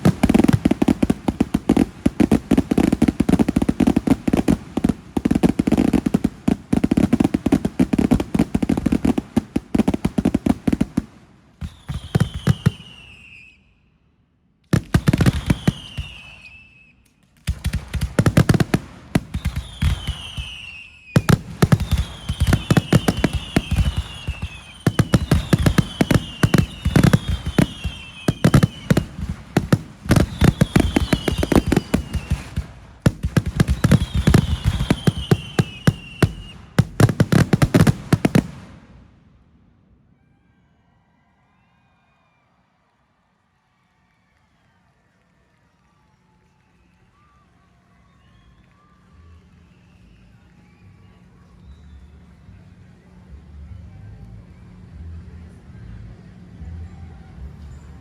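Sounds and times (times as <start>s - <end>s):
fireworks bangs and crackling: 0.0s - 13.6s, 14.7s - 39.8s
fireworks high falling whistles: 0.0s - 14.0s, 14.8s - 39.1s, 45.7s - 52.8s.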